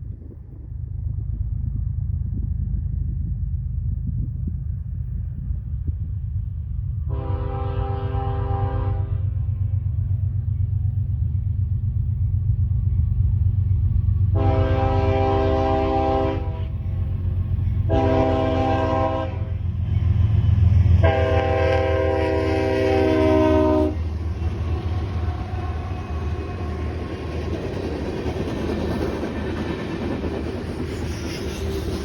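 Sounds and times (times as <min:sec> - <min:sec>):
train rumbling: 0:00.0 - 0:32.0
locomotive air horn: 0:07.1 - 0:09.4, 0:14.3 - 0:16.8, 0:17.9 - 0:19.6, 0:21.0 - 0:24.1.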